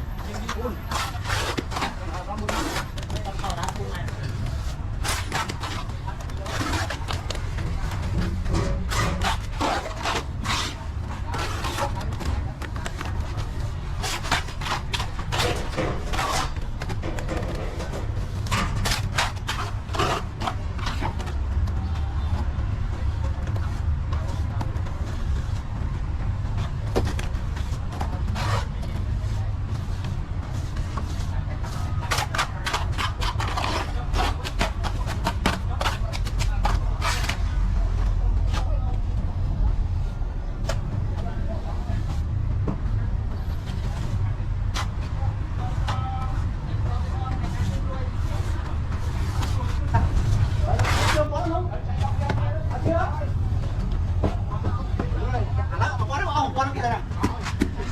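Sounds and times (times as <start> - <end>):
trowel scraping mortar on wall: 0.1 - 21.0, 31.8 - 37.5.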